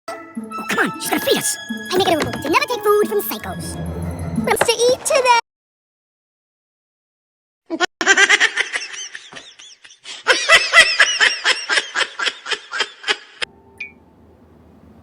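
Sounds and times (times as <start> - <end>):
high-pitched cartoon laughter: 7.7 - 13.4.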